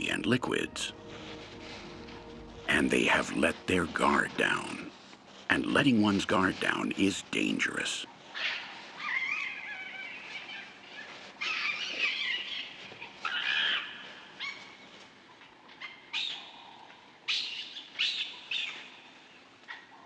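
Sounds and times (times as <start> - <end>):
baboons shrill cries: 8.4 - 14.8.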